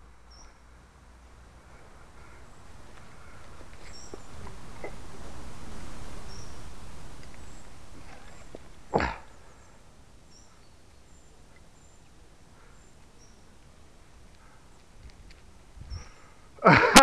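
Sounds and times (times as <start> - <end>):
wind rumble on microphone: 15.0 - 16.4.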